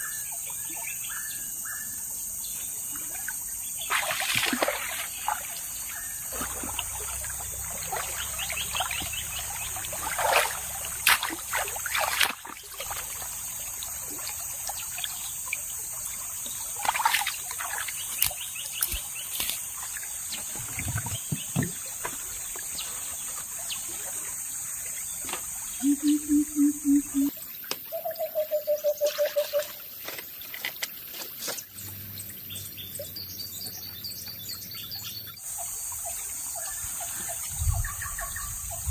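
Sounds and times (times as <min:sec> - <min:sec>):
water trickling and splashing: 0:02.3 - 0:25.9, 0:27.2 - 0:38.9
high insect drone: 0:24.0 - 0:27.3.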